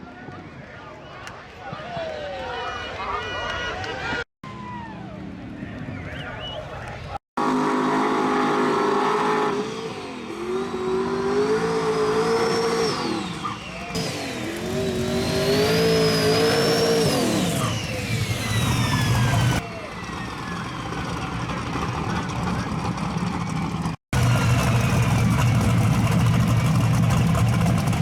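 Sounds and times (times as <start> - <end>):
race car engine accelerating: 7.4 - 28.0
turbo whine: 12.3 - 21.5.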